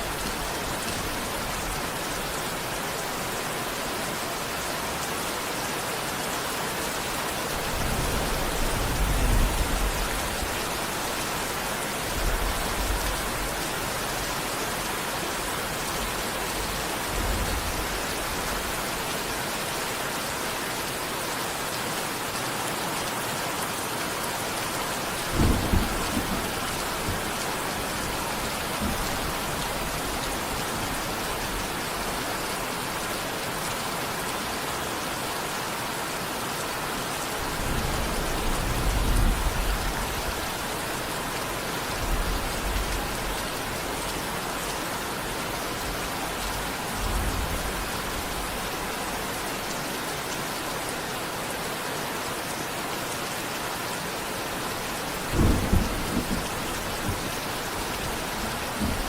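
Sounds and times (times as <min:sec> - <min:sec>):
heavy rain: 0:00.0 - 0:59.0
thunder rumbling: 0:25.2 - 0:31.8, 0:55.1 - 0:59.0.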